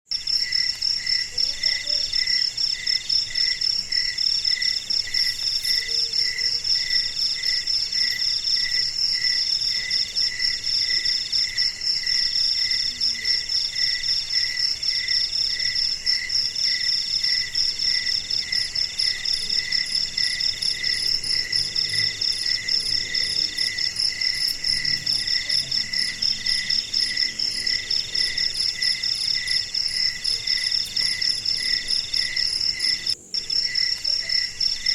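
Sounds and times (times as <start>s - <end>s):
low cricket chirps: 0.1s - 34.9s
cricket trill in phrases: 1.0s - 3.2s, 18.3s - 34.9s.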